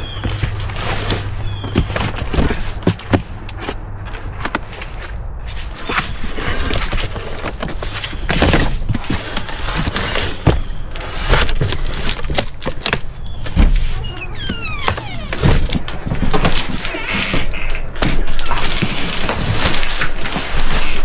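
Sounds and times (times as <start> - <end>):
cardboard scraping: 0.0 - 3.8
short falling squeak: 14.0 - 15.8.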